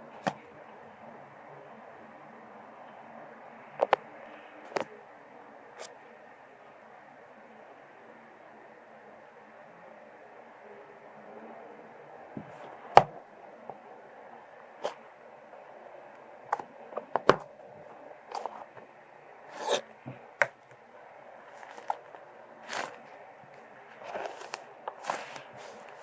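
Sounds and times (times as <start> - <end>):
slime squishing: 21.4 - 26.0.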